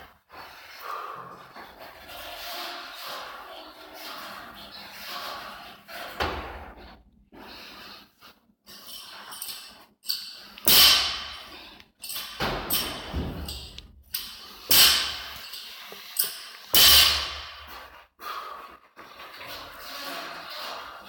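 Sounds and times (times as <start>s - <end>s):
thuds: 12.4s - 13.8s.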